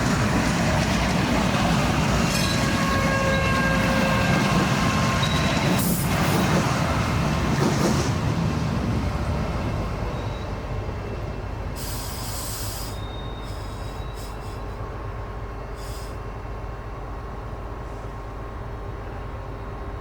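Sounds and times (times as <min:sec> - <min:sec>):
tram rumbling on rails: 0:00.0 - 0:20.0
short bursts of high hiss: 0:11.8 - 0:14.8, 0:15.8 - 0:16.2.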